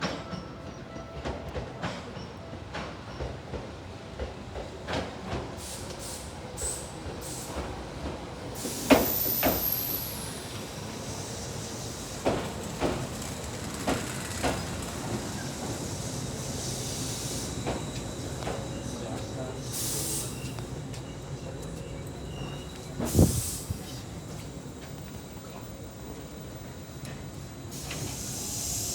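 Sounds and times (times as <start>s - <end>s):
hiss of air: 5.6s - 7.7s, 8.5s - 13.3s, 15.1s - 17.8s, 19.6s - 20.6s, 23.0s - 24.1s, 27.7s - 28.9s
train wheels knocking over rail joints: 12.0s - 15.8s.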